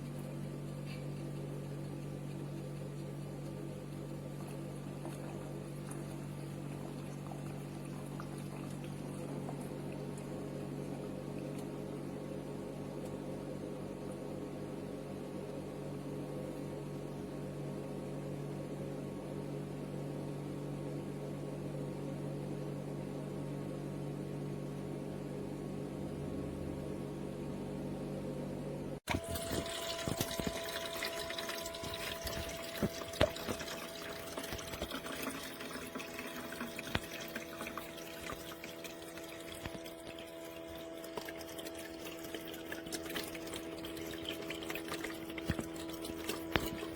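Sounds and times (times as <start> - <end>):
water moving through machine: 0.0 - 13.4, 29.1 - 46.9
ice maker humming: 0.0 - 18.0, 29.1 - 46.9
high steady machine tone: 29.1 - 46.9.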